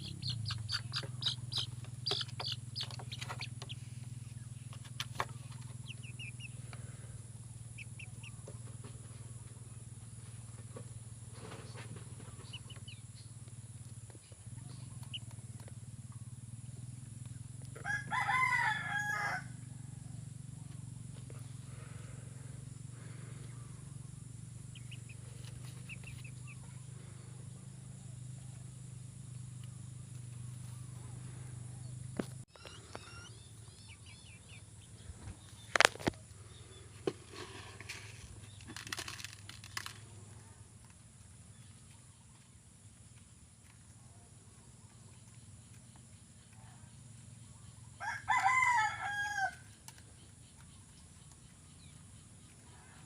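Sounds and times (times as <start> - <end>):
chicken chirping: 0.0 - 6.8, 7.7 - 9.2, 11.6 - 13.5, 14.2 - 15.7, 24.7 - 26.9, 32.5 - 36.2
steady low hum: 0.0 - 49.0
rooster crowing: 17.8 - 20.1, 48.0 - 49.7.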